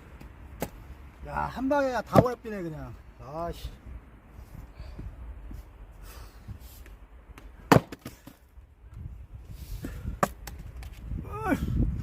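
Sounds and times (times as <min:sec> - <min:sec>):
axe striking log: 0:07.6 - 0:08.4, 0:10.2 - 0:10.6.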